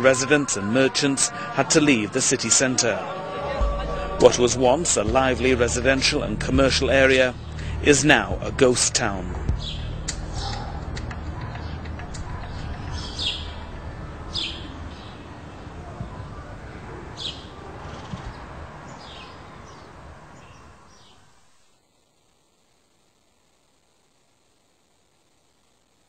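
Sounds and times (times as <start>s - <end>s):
steady low hum: 3.0s - 16.4s
small bird chirping: 9.6s - 15.3s.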